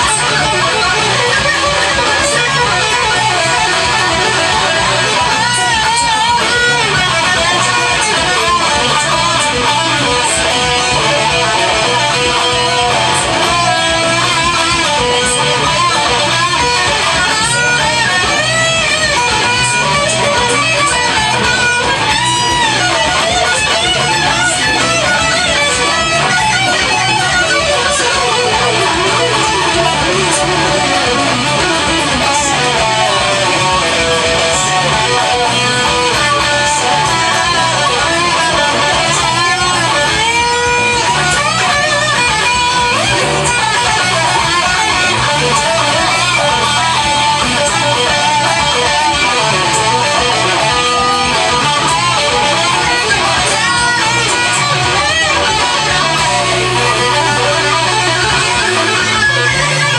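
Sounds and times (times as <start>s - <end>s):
electric guitar with bent notes: 0.0s - 59.9s
rock song recording: 0.0s - 59.9s.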